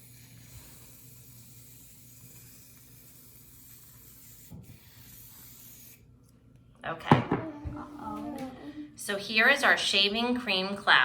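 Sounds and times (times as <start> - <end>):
aerosol can spraying foam: 0.0 - 6.0.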